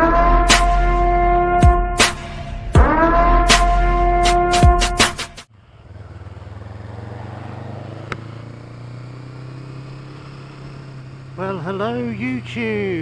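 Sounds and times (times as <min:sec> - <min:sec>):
motorcycle engine idling: 0:05.5 - 0:13.0.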